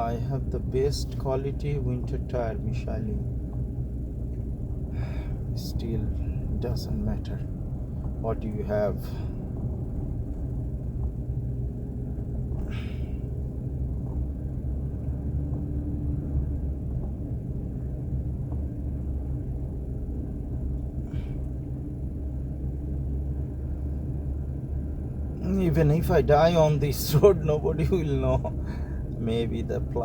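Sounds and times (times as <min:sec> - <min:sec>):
car driving on icy road: 0:00.0 - 0:30.0.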